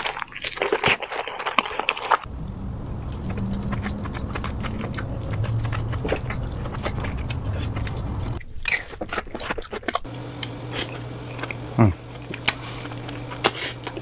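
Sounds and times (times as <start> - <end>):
low steady hum: 2.3 - 8.4, 10.1 - 14.0
wet mouth clicks and chewing: 3.1 - 14.0.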